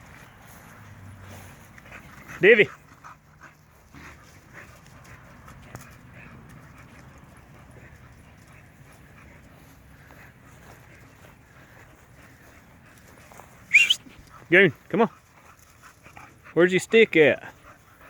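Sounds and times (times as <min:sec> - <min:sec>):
puppies whimpering: 0:13.7 - 0:14.0.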